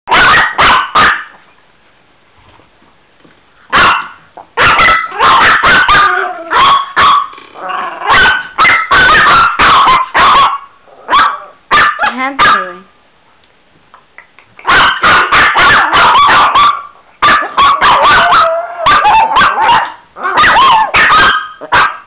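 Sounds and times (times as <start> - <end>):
small dog barking: 0.1 - 1.4, 3.7 - 7.3, 8.0 - 12.8, 14.6 - 22.0.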